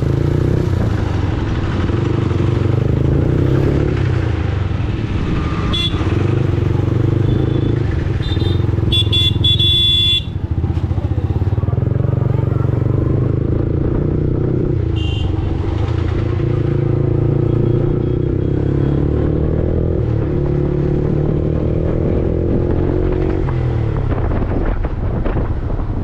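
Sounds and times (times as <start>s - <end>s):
motorcycle engine running: 0.0s - 19.1s
high horn beeps: 5.5s - 6.3s, 7.2s - 10.4s
longer loud horn: 5.7s - 6.3s, 8.2s - 10.4s, 15.0s - 15.4s.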